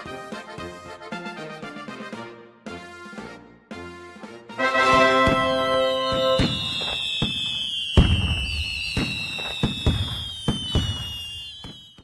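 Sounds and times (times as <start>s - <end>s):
fireworks bangs: 4.6s - 12.0s
fireworks whistling: 4.6s - 12.0s.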